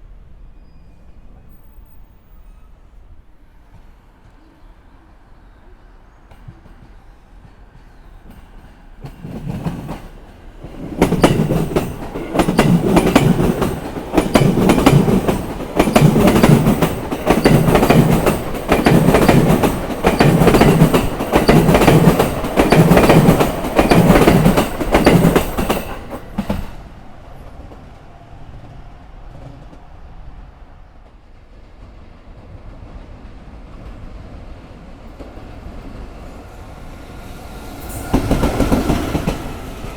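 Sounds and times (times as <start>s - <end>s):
train wheels clacking over rail joints: 6.4s - 26.8s.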